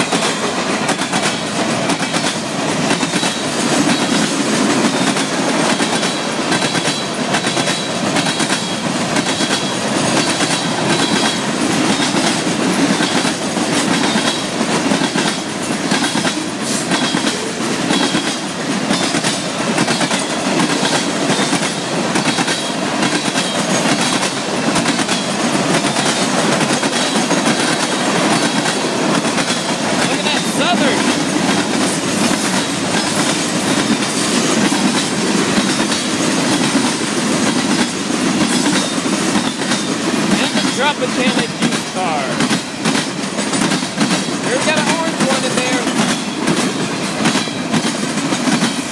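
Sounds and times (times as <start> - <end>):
freight train wheels rumbling: 0.0 - 48.9
wheels clacking over rail joints: 0.0 - 48.9.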